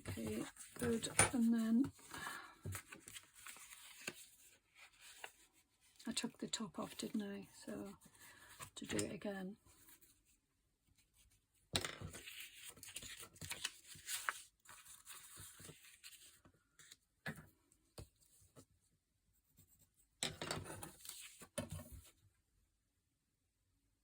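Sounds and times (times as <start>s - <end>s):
paper rustling: 0.0s - 6.0s, 12.1s - 16.4s.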